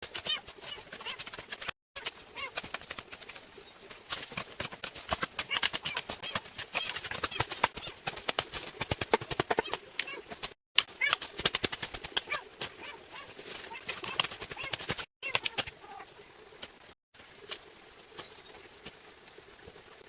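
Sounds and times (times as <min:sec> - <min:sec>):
high insect-like hiss: 0:00.0 - 0:20.0.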